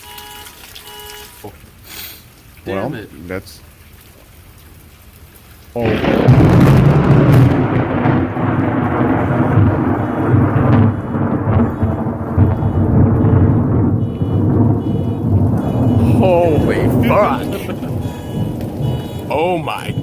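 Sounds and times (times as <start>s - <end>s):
thunder crack and rumble: 5.8s - 20.0s.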